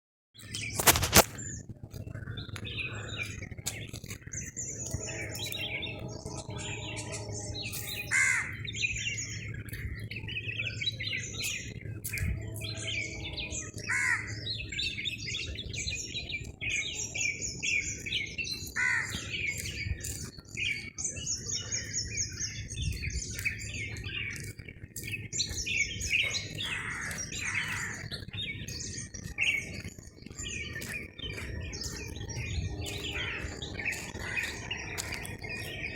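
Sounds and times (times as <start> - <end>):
birds chirping and calling: 0.4 - 35.9
steady low hum: 1.2 - 18.5.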